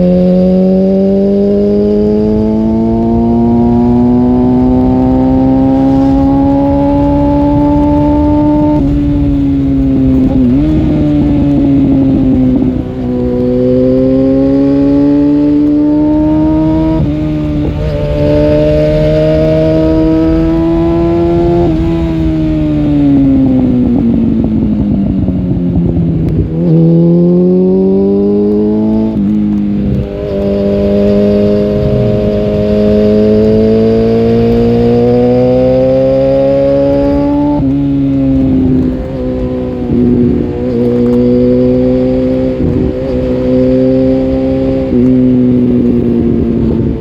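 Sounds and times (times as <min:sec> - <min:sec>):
motorcycle engine accelerating: 0:00.0 - 0:47.0.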